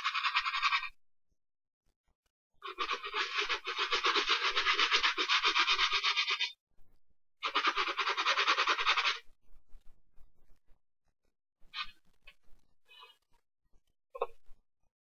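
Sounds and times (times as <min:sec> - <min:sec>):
brush scrubbing a sneaker: 0:02.8 - 0:06.5, 0:07.4 - 0:09.2.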